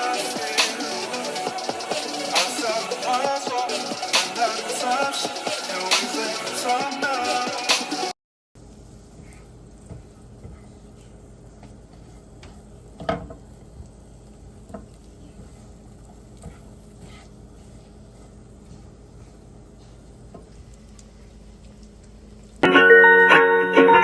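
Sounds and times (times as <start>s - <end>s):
low kitchen hum: 8.6s - 24.0s.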